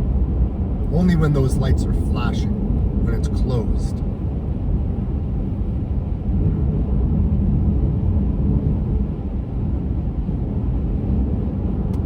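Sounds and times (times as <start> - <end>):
car interior road noise: 0.0 - 12.0.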